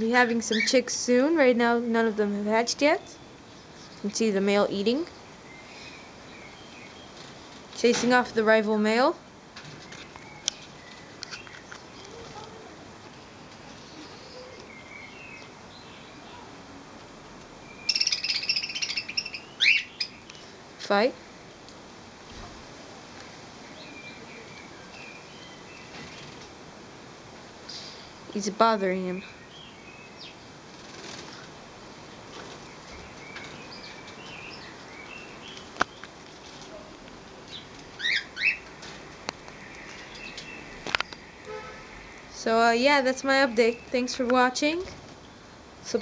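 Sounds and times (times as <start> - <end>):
budgerigars chirping: 0.1 - 0.8, 17.8 - 20.5, 37.5 - 38.6
steady hiss: 2.6 - 46.0
budgerigar rapid chattering calls: 17.9 - 20.2.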